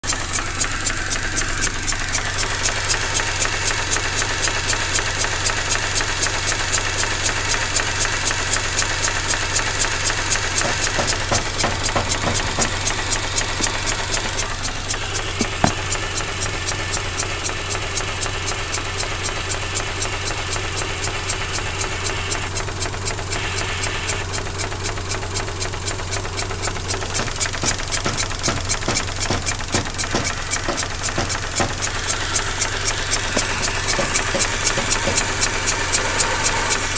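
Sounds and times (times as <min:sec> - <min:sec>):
rotary engine idling roughly: 0:00.0 - 0:36.9
valve ticking: 0:00.0 - 0:36.9
pulsing air suction: 0:23.2 - 0:24.4, 0:26.4 - 0:36.9.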